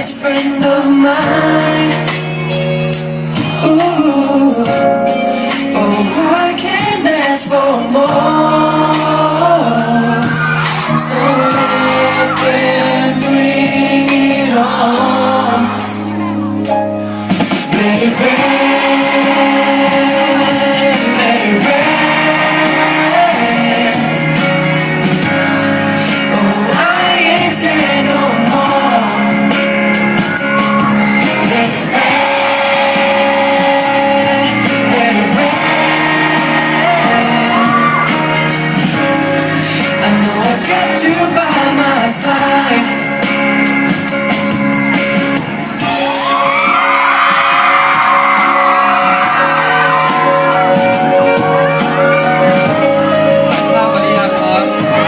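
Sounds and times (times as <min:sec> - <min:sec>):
live pop song: 0:00.0 - 0:55.0
audience shouting and whooping: 0:09.8 - 0:13.4, 0:17.8 - 0:24.3, 0:29.8 - 0:38.5, 0:45.8 - 0:52.7.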